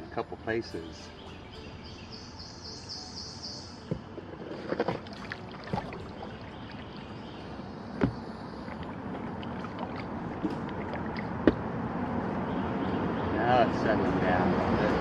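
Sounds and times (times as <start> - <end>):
water sloshing: 3.7 - 11.7.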